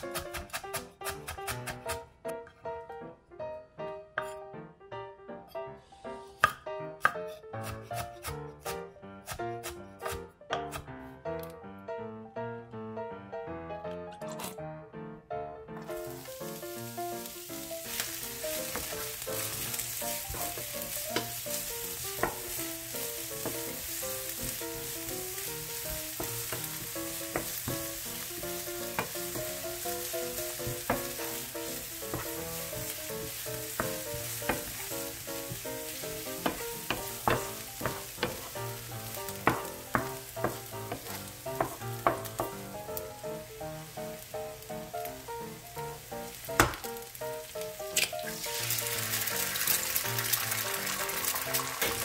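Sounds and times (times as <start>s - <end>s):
onions sizzling in hot oil: 15.8s - 52.0s
utensil knocking against pan: 36.4s - 38.5s, 39.4s - 42.6s.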